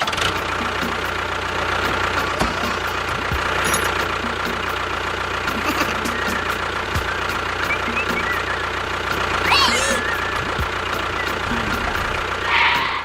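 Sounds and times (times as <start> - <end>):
small motor whining: 7.8 - 13.0.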